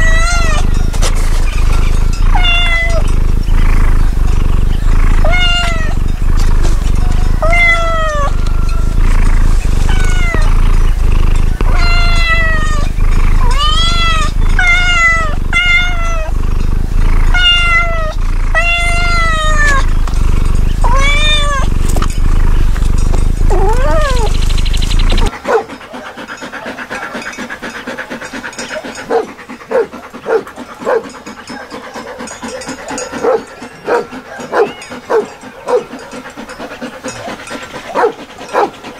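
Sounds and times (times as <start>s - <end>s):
cat meowing: 0.0s - 3.8s, 5.0s - 6.1s, 7.4s - 16.4s, 17.2s - 19.9s, 20.8s - 22.2s, 22.9s - 24.4s
steady low hum: 0.0s - 34.4s.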